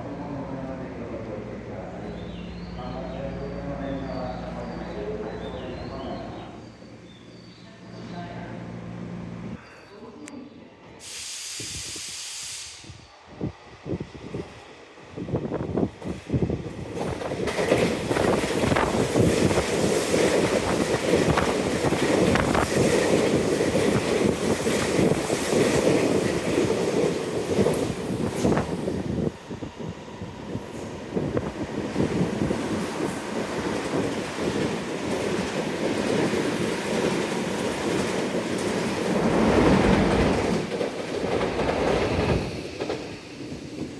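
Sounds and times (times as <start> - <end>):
rush of train wheels: 15.2 - 43.9
train wheels clicking over rail joints: 32.7 - 43.9.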